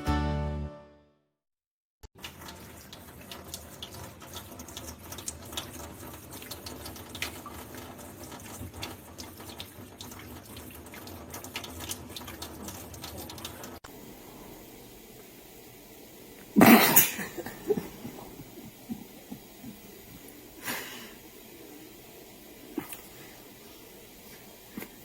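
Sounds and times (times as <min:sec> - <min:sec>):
small clicks and splashes: 0:02.1 - 0:13.8
running water: 0:02.2 - 0:25.0.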